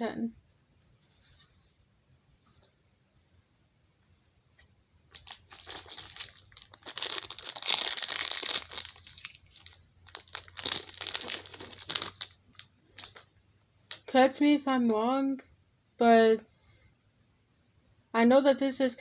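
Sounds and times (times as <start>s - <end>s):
plastic crinkling and rustling: 5.1s - 13.3s.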